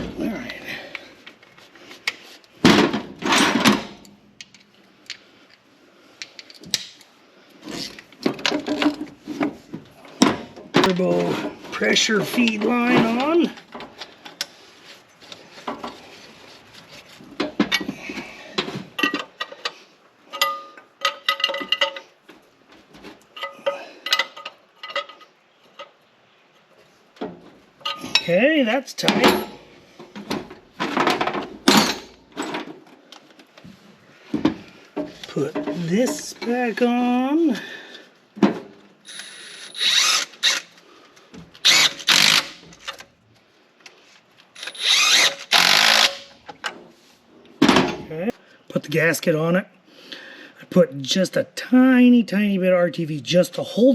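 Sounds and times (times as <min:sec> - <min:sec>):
metal tools clinking on fittings: 0:20.3 - 0:22.1, 0:23.4 - 0:25.9, 0:27.8 - 0:28.4
power tool spinning fasteners: 0:39.1 - 0:40.8, 0:41.6 - 0:43.0, 0:44.6 - 0:46.3.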